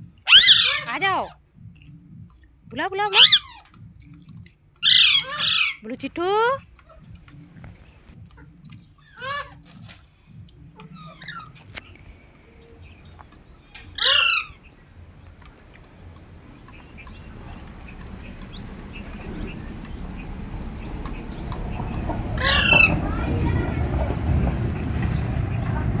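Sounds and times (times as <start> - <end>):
low rumbling noise: 0.0 - 26.0
parakeet squawking: 0.3 - 1.4, 2.9 - 3.7, 4.8 - 7.0, 9.0 - 10.0, 10.8 - 11.8, 13.7 - 14.8, 22.3 - 23.2.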